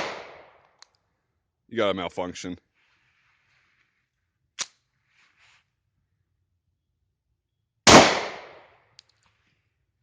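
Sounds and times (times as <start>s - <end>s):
pistol shot: 0.0s - 0.6s, 7.8s - 8.7s.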